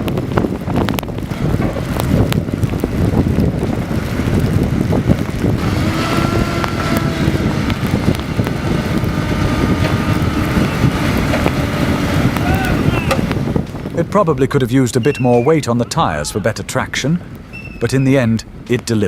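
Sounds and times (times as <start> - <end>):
heavy truck engine under load: 0.0 - 14.6
wind buffeting microphone: 0.0 - 19.0.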